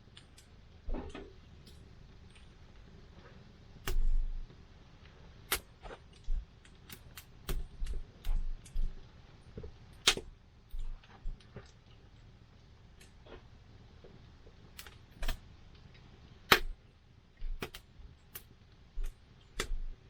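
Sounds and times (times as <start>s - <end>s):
campfire crackling and popping: 3.7s - 12.1s.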